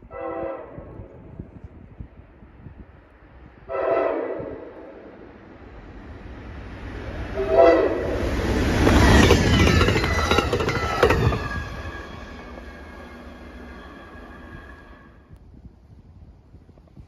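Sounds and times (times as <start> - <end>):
train engine and wheels rumbling: 0.0 - 17.0
locomotive air horn blasts: 0.1 - 1.0, 3.7 - 5.0, 7.4 - 8.2.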